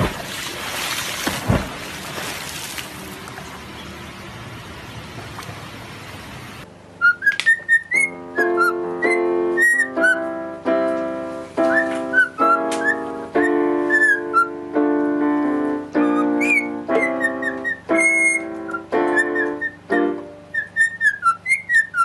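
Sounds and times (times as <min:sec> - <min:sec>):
rushing water: 0:00.0 - 0:06.6
cockatiel whistling a tune: 0:07.0 - 0:10.3, 0:11.6 - 0:14.6, 0:16.0 - 0:19.9, 0:20.5 - 0:22.0
keyboard chords: 0:08.0 - 0:20.6.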